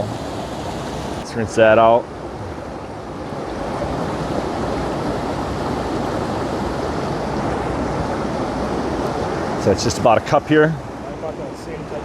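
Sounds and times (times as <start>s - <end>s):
waterfall rushing: 0.0s - 1.2s.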